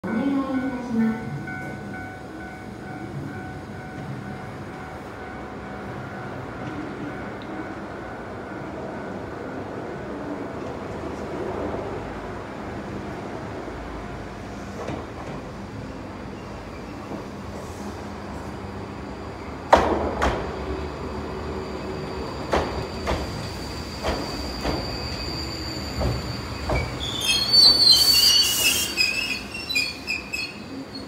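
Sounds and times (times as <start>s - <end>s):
train rolling rumble: 0.0s - 31.0s
high-pitched brake squealing: 20.9s - 31.0s.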